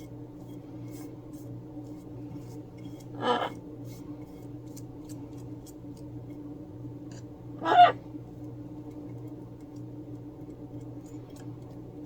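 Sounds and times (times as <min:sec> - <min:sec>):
paintbrush strokes on paper: 0:00.0 - 0:06.4
steady low hum: 0:00.0 - 0:12.0
parrot squawk: 0:03.2 - 0:03.5, 0:07.6 - 0:08.0.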